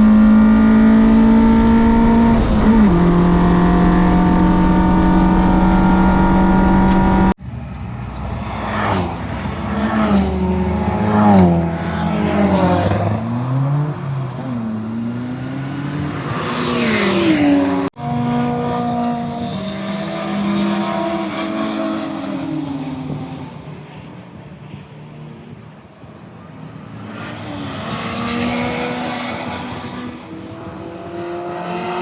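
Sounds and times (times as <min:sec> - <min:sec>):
steady engine drone: 0:00.0 - 0:12.2
race car engines revving and passing: 0:00.0 - 0:32.0.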